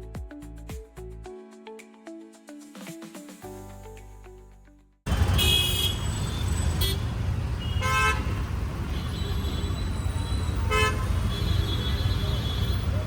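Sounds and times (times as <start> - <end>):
background music: 0.0 - 5.0
car horns honking: 5.1 - 13.0
road traffic engine rumble: 5.1 - 13.0.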